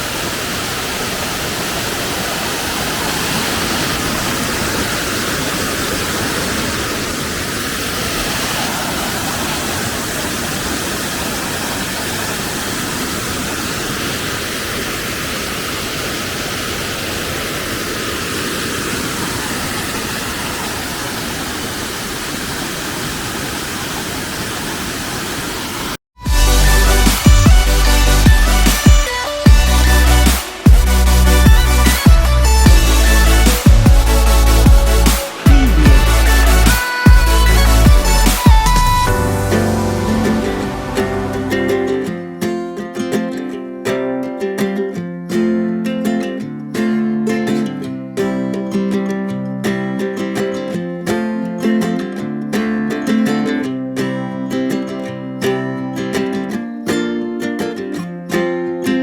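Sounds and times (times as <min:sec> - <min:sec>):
waterfall rushing: 0:00.0 - 0:42.8.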